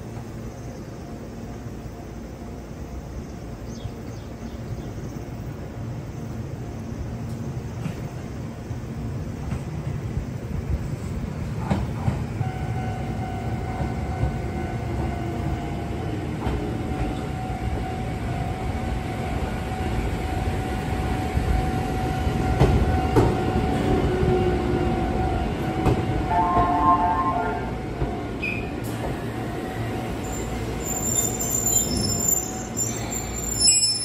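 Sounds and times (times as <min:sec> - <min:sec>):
electric train whine: 0:00.0 - 0:34.0
train wheels rumbling on rails: 0:00.0 - 0:34.0.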